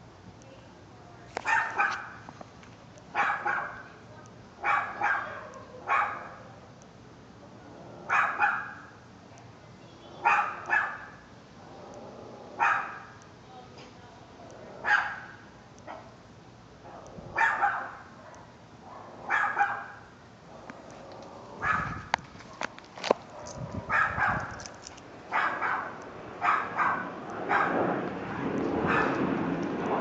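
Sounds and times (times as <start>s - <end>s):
dog barking: 1.4s - 2.2s, 3.1s - 3.9s, 4.6s - 6.4s, 8.1s - 8.9s, 10.2s - 11.2s, 12.6s - 13.2s, 14.8s - 16.2s, 16.9s - 20.1s, 21.6s - 22.7s, 23.3s - 24.6s, 25.3s - 27.8s, 28.8s - 29.2s.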